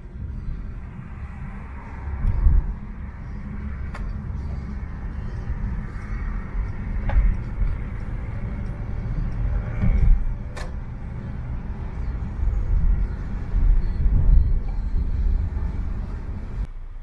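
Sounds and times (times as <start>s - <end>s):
car road rumble: 0.0s - 17.0s.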